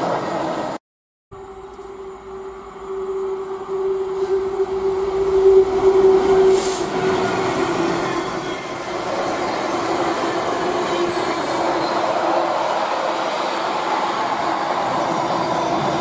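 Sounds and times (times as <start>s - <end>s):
diesel locomotive engine drone: 1.4s - 16.0s.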